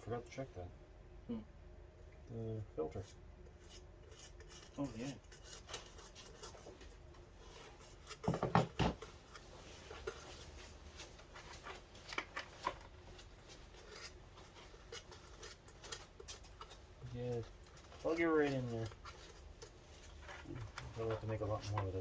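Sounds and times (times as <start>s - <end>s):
parts clicking and knocking on workbench: 8.2s - 9.1s.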